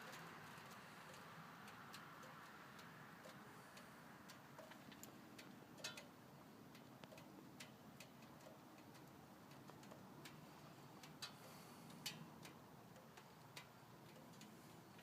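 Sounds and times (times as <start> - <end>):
faint light ticks: 0.0 - 15.0.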